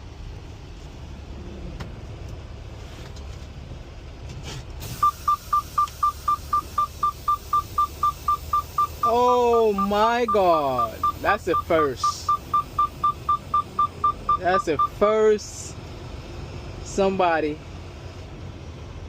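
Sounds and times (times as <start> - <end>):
truck idling: 0.0 - 19.0
electronic warning chime beeping: 5.0 - 15.0.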